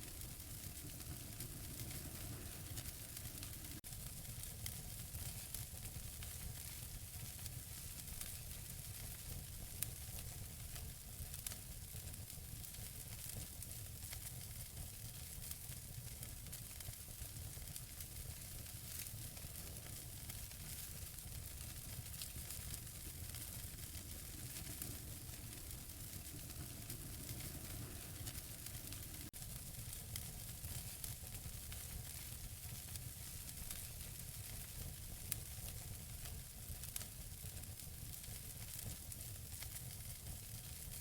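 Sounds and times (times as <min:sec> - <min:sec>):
fire hissing: 0:00.0 - 0:08.5, 0:15.2 - 0:36.0
wood fire crackling: 0:00.0 - 0:41.0
sharp pops of fire: 0:12.6 - 0:40.9.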